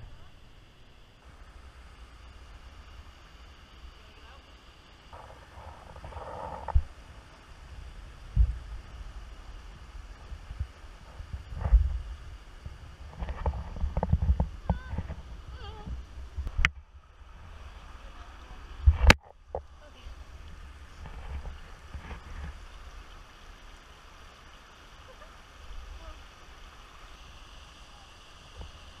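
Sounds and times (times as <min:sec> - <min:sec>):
low rumble: 0:00.0 - 0:23.1.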